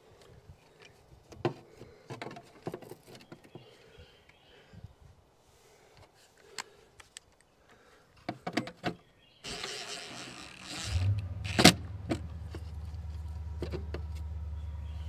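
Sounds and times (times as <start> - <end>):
machine humming: 9.5 - 15.0.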